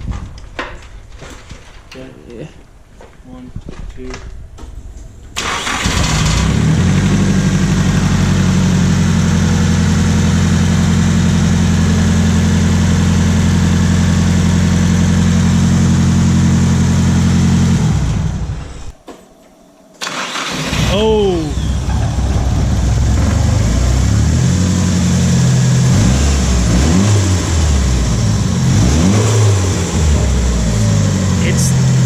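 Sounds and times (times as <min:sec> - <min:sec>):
starter cranking engine: 0:05.4 - 0:07.0, 0:20.0 - 0:22.9
car engine running: 0:05.6 - 0:18.9, 0:20.1 - 0:32.0.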